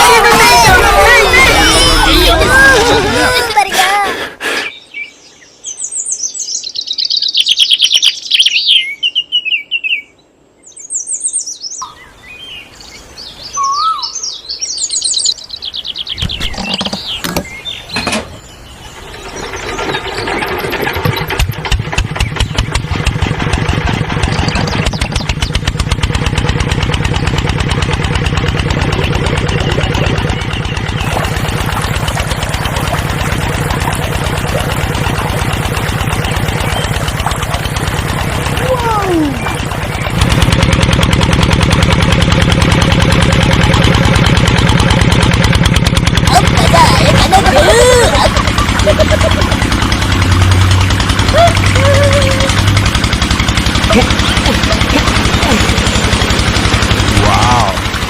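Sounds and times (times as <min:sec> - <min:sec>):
small engine puttering: 0:00.0 - 0:04.6, 0:15.6 - 0:58.0
small birds chirping: 0:04.4 - 0:23.2, 0:24.1 - 0:26.2, 0:28.6 - 0:40.5.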